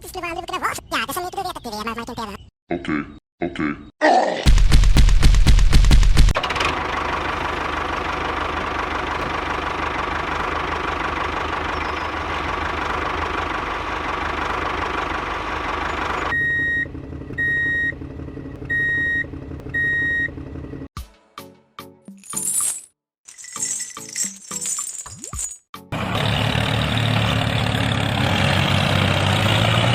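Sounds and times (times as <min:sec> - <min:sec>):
engine running with whine: 0:06.2 - 0:20.9, 0:25.9 - 0:29.9
electronic beeps: 0:16.3 - 0:18.0, 0:18.6 - 0:20.3.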